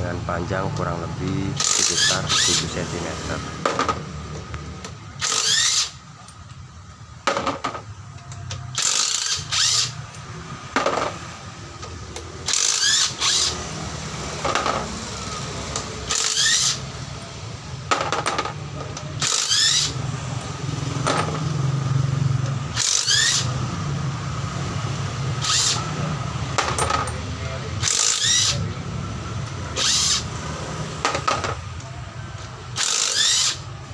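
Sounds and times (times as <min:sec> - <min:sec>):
power wrench spinning bolts: 0:01.6 - 0:02.8, 0:05.2 - 0:06.5, 0:08.3 - 0:11.2, 0:11.8 - 0:13.6, 0:14.4 - 0:17.0, 0:19.2 - 0:20.0, 0:20.9 - 0:21.6, 0:22.7 - 0:23.5, 0:25.4 - 0:27.2, 0:27.8 - 0:28.6, 0:29.7 - 0:30.3, 0:32.7 - 0:33.8.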